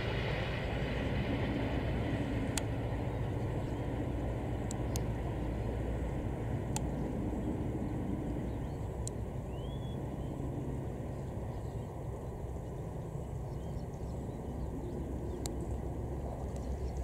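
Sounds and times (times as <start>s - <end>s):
distant train rumbling: 0.0s - 17.0s
rising bird chirp: 6.9s - 17.0s.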